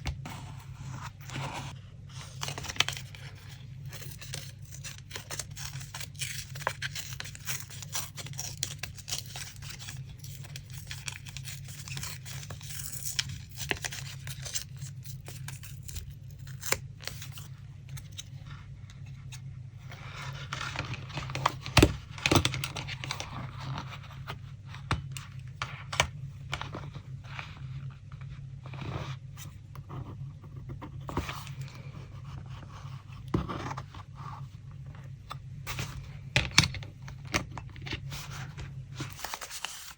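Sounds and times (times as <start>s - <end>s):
steady low hum: 0.0s - 39.9s
paper rustling and tearing: 0.3s - 18.2s, 37.9s - 39.9s.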